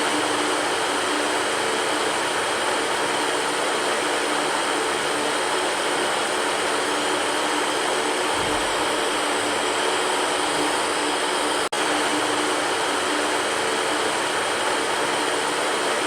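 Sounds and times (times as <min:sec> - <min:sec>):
electric fan air rush: 0:00.0 - 0:16.0.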